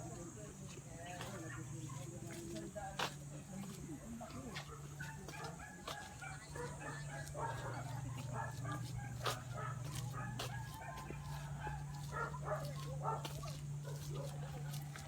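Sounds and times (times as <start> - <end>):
steady low hum: 5.6 - 15.0.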